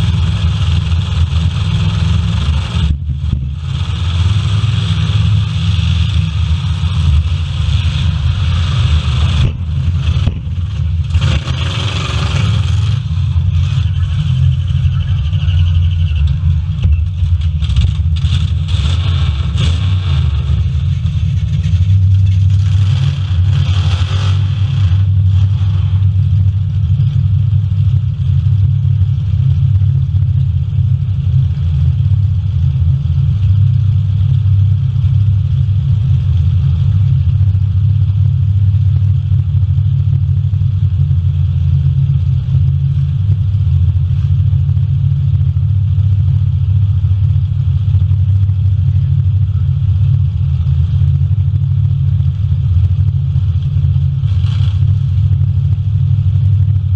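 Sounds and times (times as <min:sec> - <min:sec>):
car engines revving: 0:00.0 - 0:31.0, 0:46.9 - 0:56.8.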